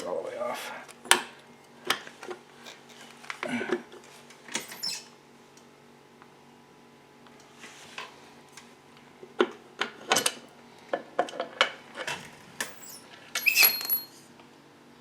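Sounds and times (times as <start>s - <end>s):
metal tools clinking on workbench: 12.6s - 14.2s.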